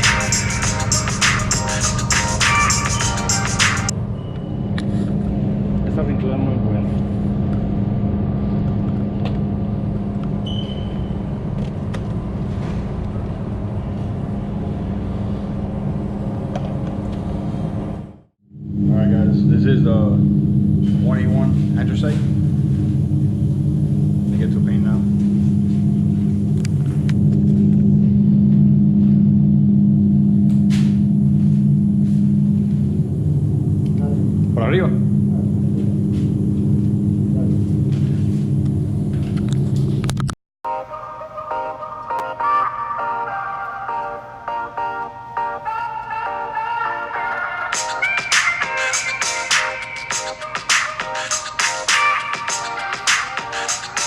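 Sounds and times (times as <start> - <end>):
spray booth machinery droning: 18.7 - 28.3.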